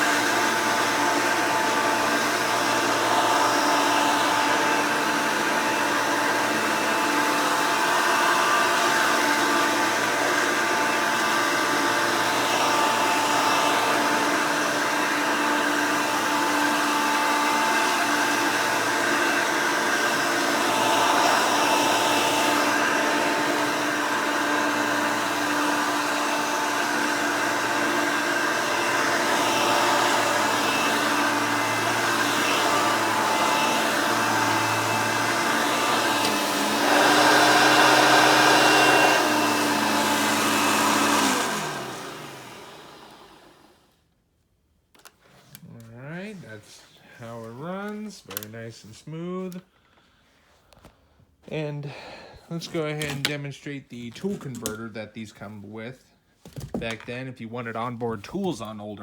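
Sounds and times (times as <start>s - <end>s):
vacuum cleaner running: 0.0s - 44.0s.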